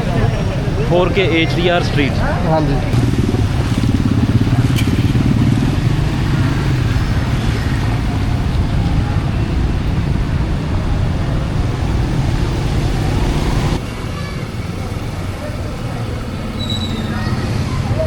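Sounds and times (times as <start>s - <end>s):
street noise: 0.0s - 18.0s
vehicle engine running: 2.8s - 16.6s.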